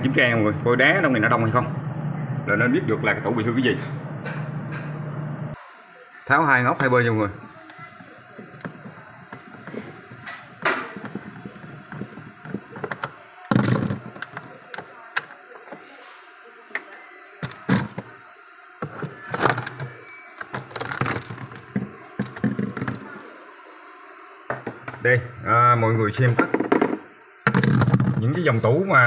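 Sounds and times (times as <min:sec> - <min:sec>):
plastic cover clicks and scrapes: 0:18.8 - 0:23.2
thumps: 0:26.4 - 0:28.4.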